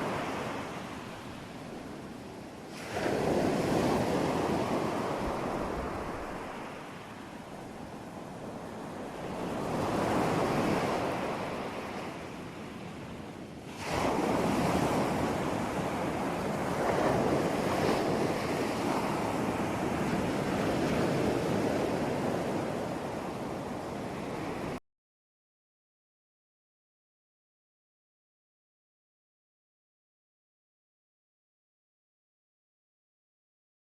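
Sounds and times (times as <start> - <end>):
ocean waves breaking: 0.0 - 24.8.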